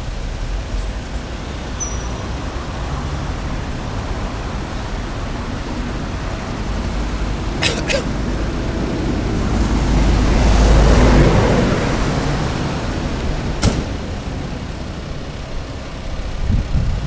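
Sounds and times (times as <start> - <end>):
street traffic rumble: 0.0 - 17.0
vehicle door slamming: 13.6 - 14.0.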